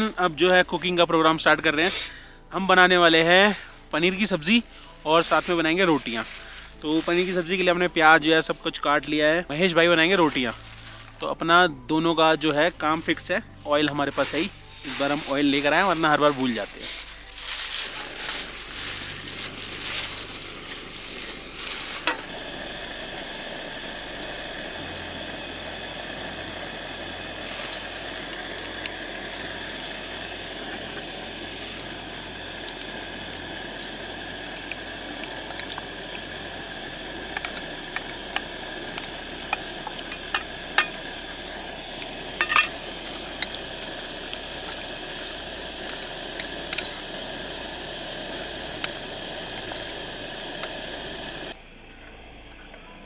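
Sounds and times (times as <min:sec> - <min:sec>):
onions frying in oil: 0:13.8 - 0:51.6.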